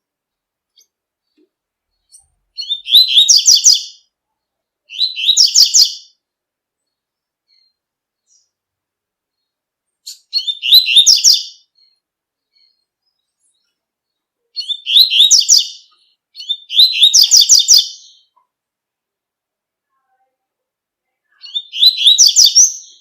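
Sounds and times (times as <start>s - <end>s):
bird singing high repeated notes: 2.1s - 4.0s, 4.9s - 6.2s, 10.1s - 12.0s, 14.6s - 18.4s, 21.4s - 23.0s.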